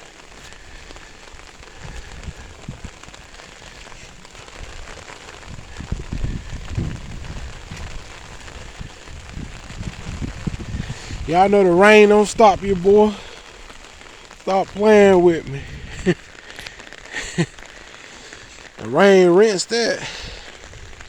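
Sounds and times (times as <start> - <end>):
low bumps: 0.0 - 16.8
rain pattering: 0.0 - 21.0.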